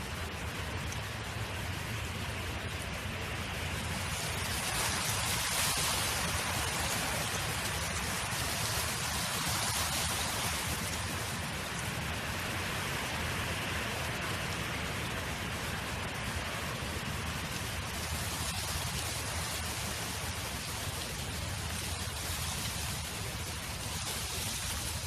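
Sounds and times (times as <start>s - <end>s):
steady wind: 0.0s - 25.0s.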